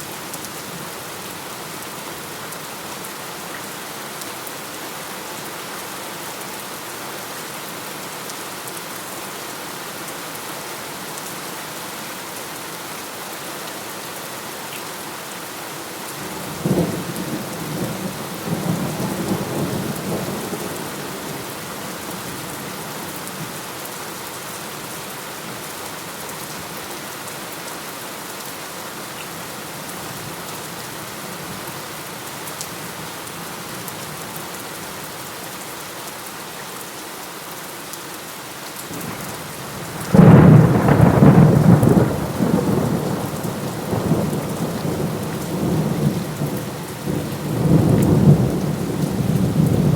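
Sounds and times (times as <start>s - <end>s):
heavy rain falling: 0.0s - 49.9s
thunderclap with rolling rumble: 40.0s - 46.5s.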